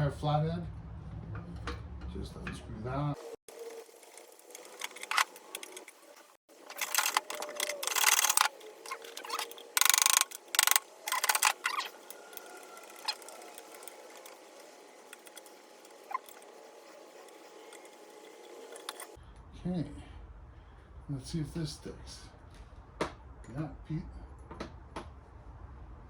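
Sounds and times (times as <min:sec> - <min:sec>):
handling of parts: 0:03.5 - 0:19.2
screwdriver scraping metal: 0:06.6 - 0:19.2.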